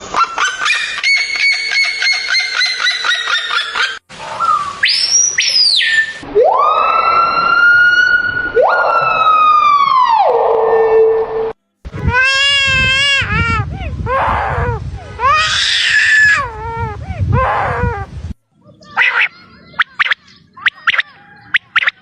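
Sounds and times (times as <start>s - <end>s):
bird calling rapid notes: 0.1s - 6.2s, 18.6s - 22.0s
bird siren-like whistles: 0.2s - 11.5s.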